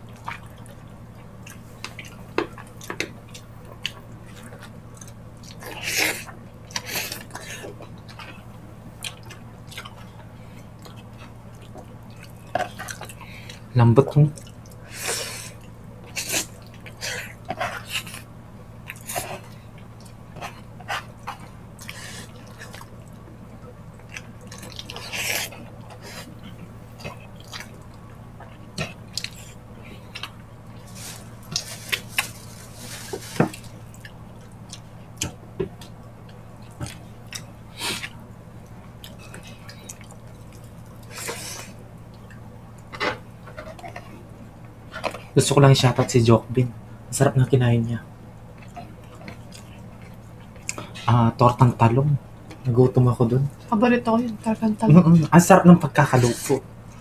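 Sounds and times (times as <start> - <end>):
wet chewing and lip-smacking: 0.0 - 13.7, 15.5 - 30.9, 33.8 - 41.4, 48.5 - 51.0
steady low hum: 0.0 - 57.0.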